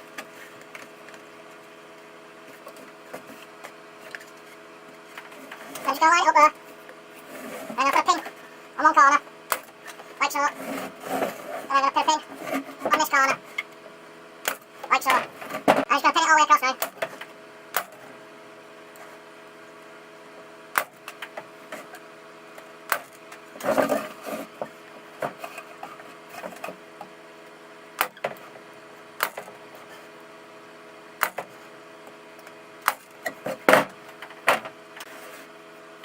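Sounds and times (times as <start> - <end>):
pin nailer snapping: 20.7 - 21.2.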